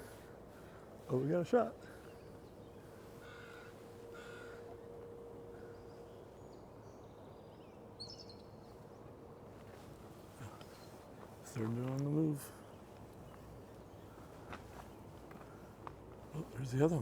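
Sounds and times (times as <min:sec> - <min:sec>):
harsh bird calls: 0:00.0 - 0:08.6.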